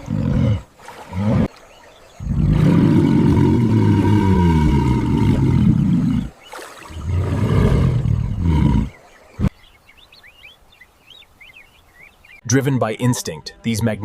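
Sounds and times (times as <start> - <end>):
deep animal roars: 0.0 - 1.5, 2.2 - 6.3, 6.9 - 9.0.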